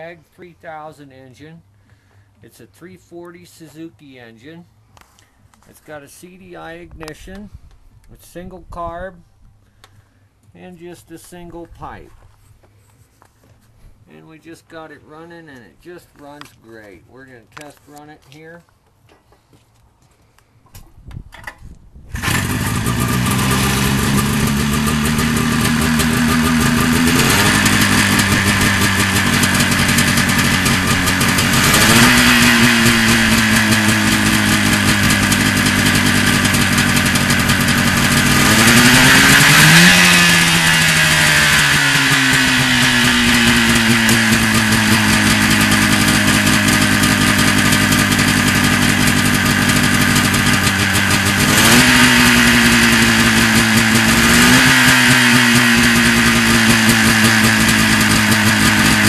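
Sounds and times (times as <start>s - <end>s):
two-stroke engine revving: 22.1s - 59.0s.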